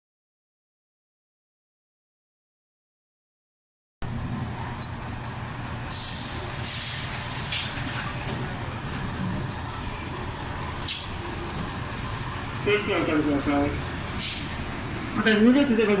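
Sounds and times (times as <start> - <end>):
low vehicle hum: 4.0 - 16.0
compressed air hiss: 5.9 - 7.8, 14.2 - 14.6.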